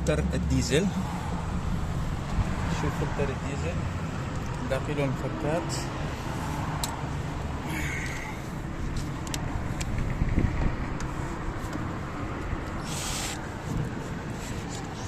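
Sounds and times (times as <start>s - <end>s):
low background rumble: 0.0s - 12.8s
short hiss: 12.8s - 13.4s.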